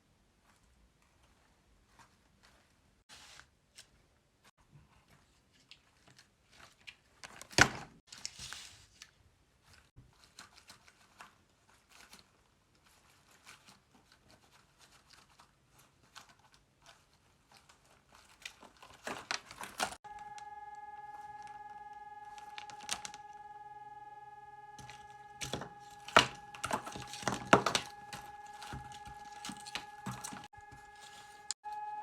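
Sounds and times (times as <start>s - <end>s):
paper crinkling: 5.0s - 23.5s, 24.7s - 31.6s
loud paper rustle: 5.9s - 20.3s, 22.2s - 23.4s, 24.8s - 31.6s.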